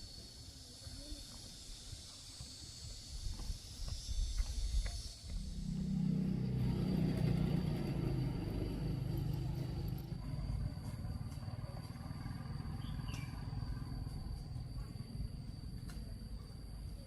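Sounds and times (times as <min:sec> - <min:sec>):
motor engine running: 0:02.3 - 0:15.6.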